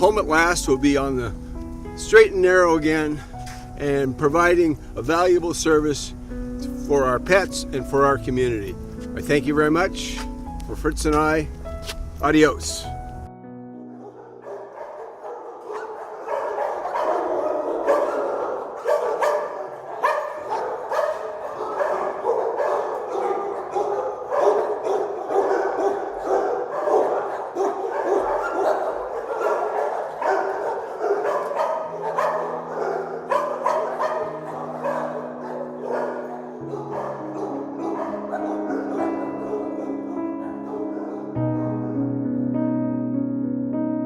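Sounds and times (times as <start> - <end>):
many dogs barking: 13.9 - 42.0.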